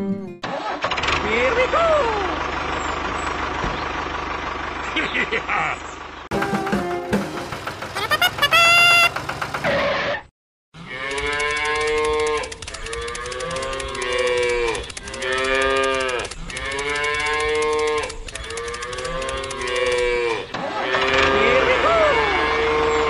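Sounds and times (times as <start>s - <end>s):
cattle mooing: 10.8s - 23.0s.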